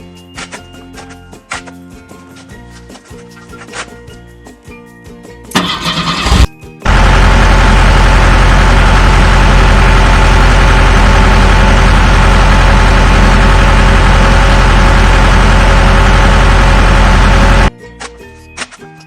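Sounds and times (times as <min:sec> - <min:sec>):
truck engine idling: 0:05.6 - 0:17.7.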